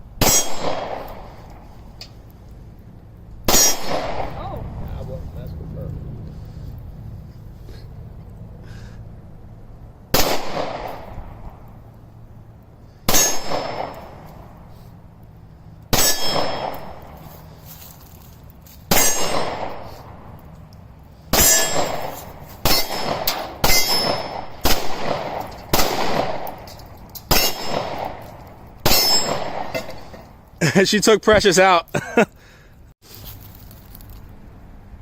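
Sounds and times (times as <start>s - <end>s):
steel plate clanging: 0.2s - 0.9s, 13.1s - 14.0s, 15.9s - 17.3s, 18.9s - 19.8s, 21.4s - 24.8s, 26.6s - 30.4s
gunshots: 0.2s - 1.6s, 3.5s - 4.6s, 10.1s - 11.4s, 13.1s - 14.3s, 15.9s - 17.2s, 18.9s - 20.2s, 21.3s - 26.7s, 27.3s - 30.2s.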